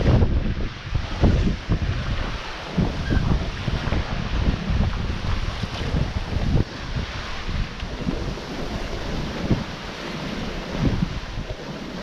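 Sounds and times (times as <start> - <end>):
hiss of wind: 0.0 - 12.0
rushing water: 0.0 - 12.0
wind buffeting microphone: 0.0 - 12.0.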